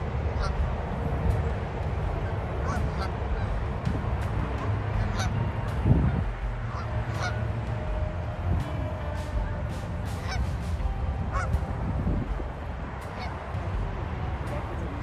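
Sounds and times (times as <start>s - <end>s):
geese honking: 0.0s - 15.0s
low rumble: 0.0s - 15.0s.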